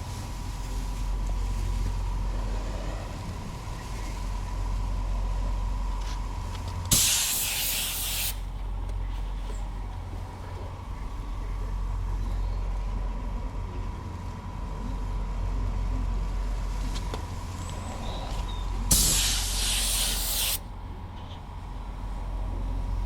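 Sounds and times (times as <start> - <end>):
steady low hum: 0.0 - 23.0
paint spray gun hissing: 6.9 - 8.4, 18.9 - 20.6.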